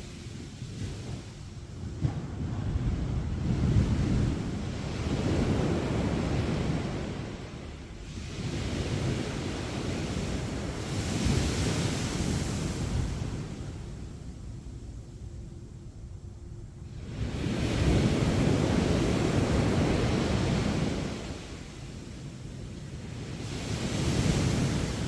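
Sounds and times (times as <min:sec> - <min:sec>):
sea waves breaking on beach: 0:23.0 - 0:25.0.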